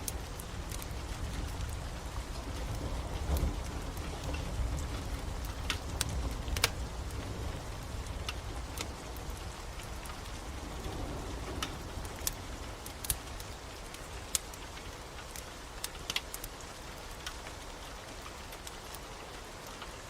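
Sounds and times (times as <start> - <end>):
steady rain: 0.0 - 20.0
wood fire crackling and popping: 0.0 - 20.0.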